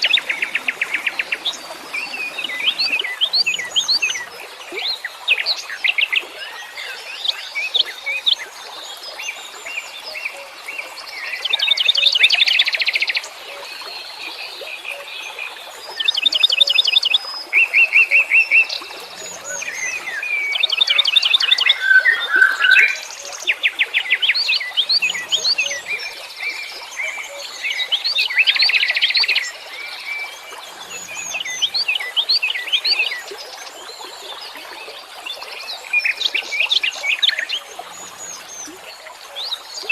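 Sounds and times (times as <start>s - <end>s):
songbirds chirping: 0.0s - 6.2s, 17.1s - 39.9s
loud rapid bird trills: 19.2s - 23.1s.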